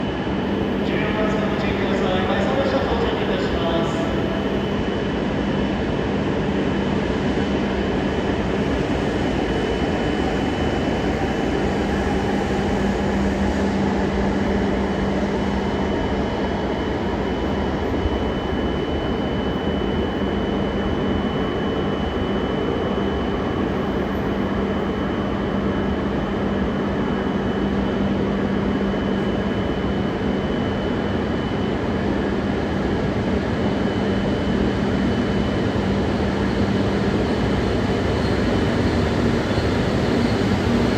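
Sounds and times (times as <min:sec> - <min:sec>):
faint high whine: 0:00.0 - 0:32.0
train mechanical hum: 0:00.0 - 0:40.9.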